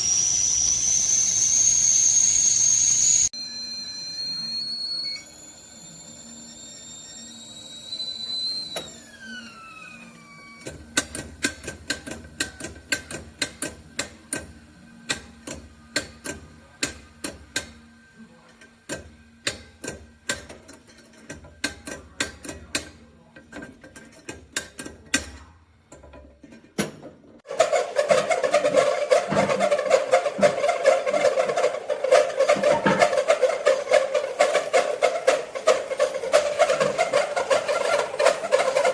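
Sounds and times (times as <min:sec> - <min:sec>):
kettle high-pitched squeal: 0:00.0 - 0:10.8, 0:27.5 - 0:38.9.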